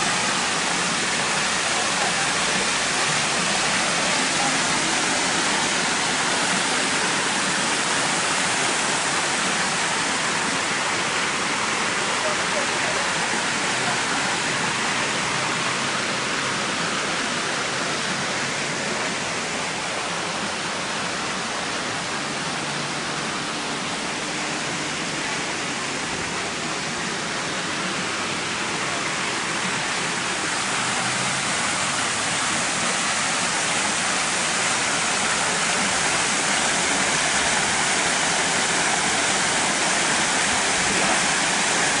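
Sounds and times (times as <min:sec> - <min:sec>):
waterfall rushing into pond: 0:00.0 - 0:42.0.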